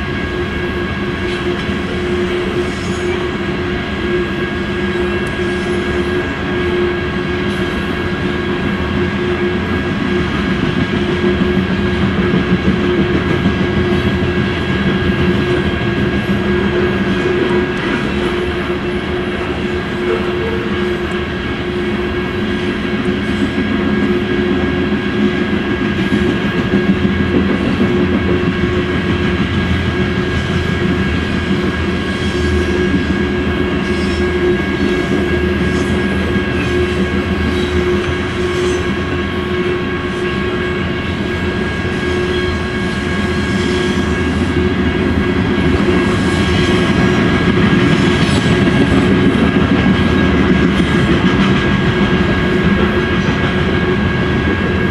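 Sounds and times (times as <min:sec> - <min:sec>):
train wheels clattering over rail joints: 0:45.3 - 0:54.9.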